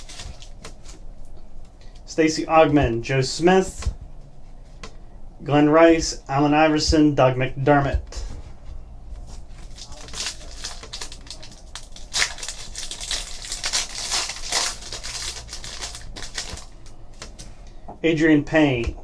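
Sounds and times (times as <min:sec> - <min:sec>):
foil wrapper crinkling and tearing: 0:00.0 - 0:01.0, 0:09.6 - 0:17.0
faint low hum: 0:00.0 - 0:19.0.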